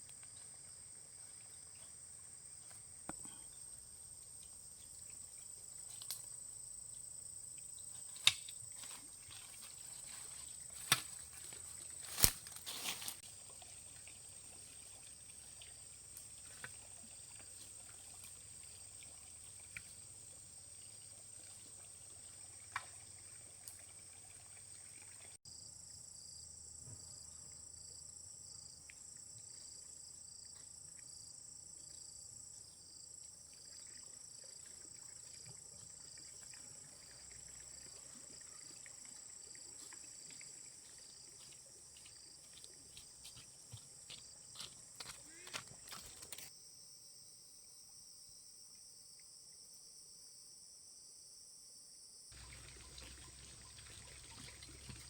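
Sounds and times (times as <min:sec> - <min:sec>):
insects chirring drone: 0:00.0 - 0:55.0
pulsing insect call: 0:52.4 - 0:55.0.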